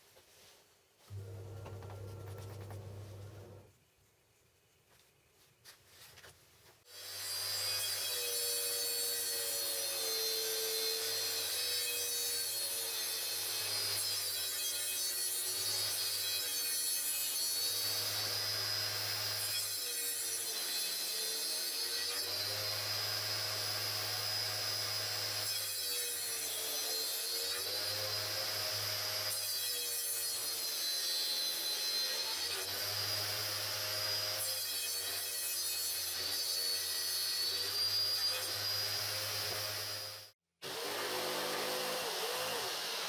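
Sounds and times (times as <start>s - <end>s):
power saw cutting: 6.9s - 43.0s.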